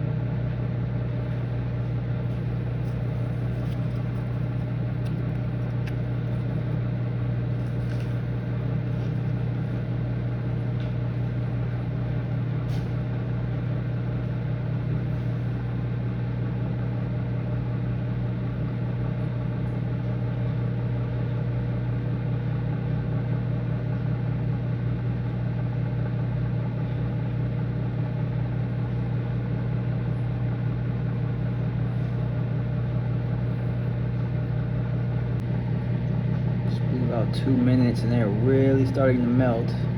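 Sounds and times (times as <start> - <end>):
microwave oven humming: 0.0 - 39.9.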